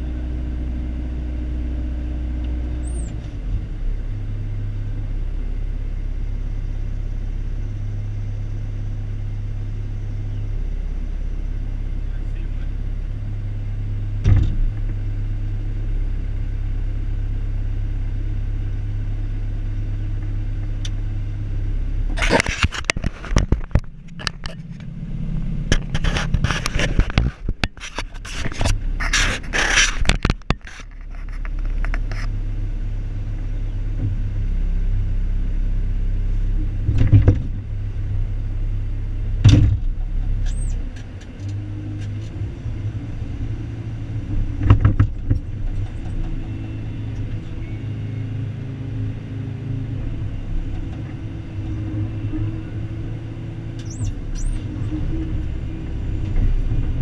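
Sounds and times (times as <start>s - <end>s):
excavator engine running: 0.0s - 57.0s
bucket scraping and clanking: 22.2s - 24.9s, 25.7s - 31.4s.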